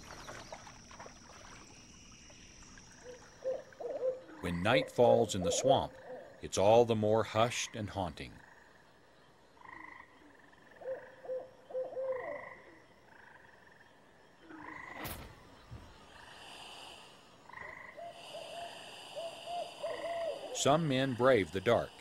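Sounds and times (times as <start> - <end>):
frogs calling: 0.0 - 22.0
lower wavering frog calls: 2.6 - 6.4, 9.6 - 15.0, 16.0 - 21.8.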